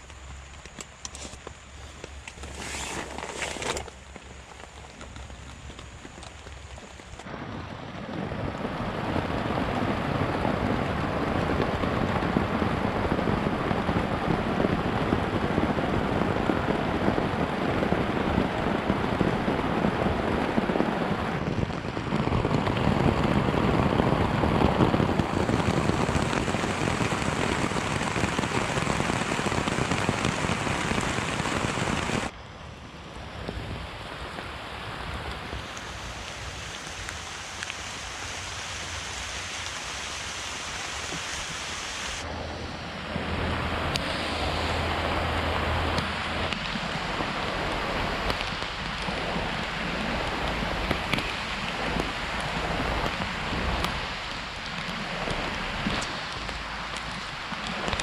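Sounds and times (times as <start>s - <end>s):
heavy rain on a tarp: 0.0s - 32.4s, 33.0s - 58.0s.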